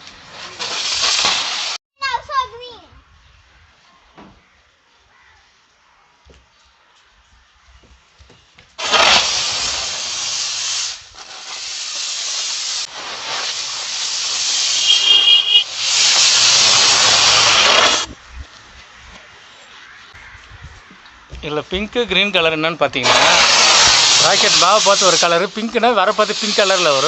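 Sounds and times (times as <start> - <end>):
firecracker hissing: 0.0 - 1.8, 8.8 - 18.2, 23.0 - 27.0
high whistle: 14.6 - 15.7.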